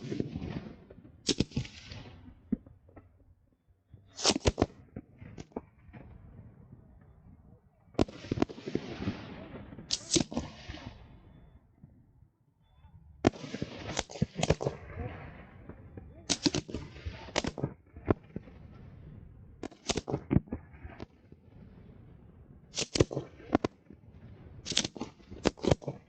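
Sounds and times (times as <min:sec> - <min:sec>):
fireworks bangs: 0:00.0 - 0:03.2, 0:03.9 - 0:11.8, 0:13.2 - 0:26.0
fireworks crackling: 0:00.0 - 0:03.2, 0:04.0 - 0:06.4, 0:08.0 - 0:11.2, 0:13.2 - 0:26.0.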